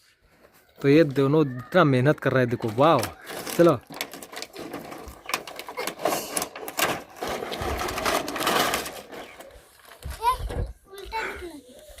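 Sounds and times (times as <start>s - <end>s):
plastic gears clicking and rattling: 2.6s - 9.4s.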